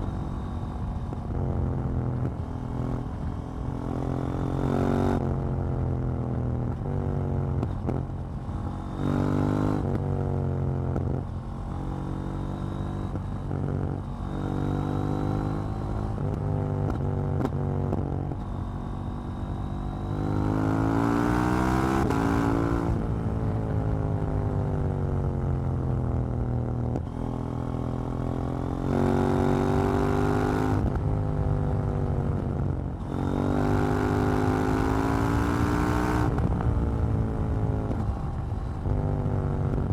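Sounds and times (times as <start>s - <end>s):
motorcycle engine revving: 26.8s - 39.9s.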